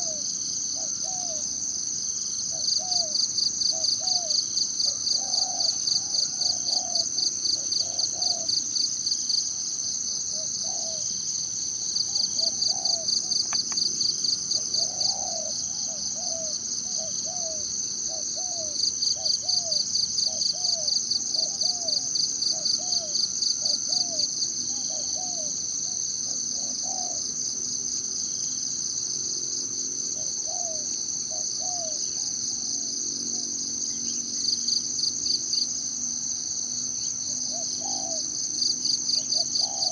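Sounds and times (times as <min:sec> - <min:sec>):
insect chorus trilling: 0:00.0 - 0:39.9
bird low calls: 0:02.5 - 0:08.7, 0:10.3 - 0:27.4, 0:30.2 - 0:34.6, 0:37.5 - 0:39.9.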